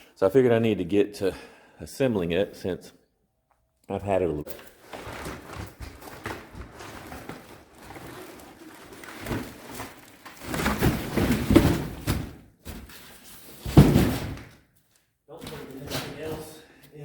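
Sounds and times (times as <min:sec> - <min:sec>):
rummaging through cardboard box: 0:04.8 - 0:14.4.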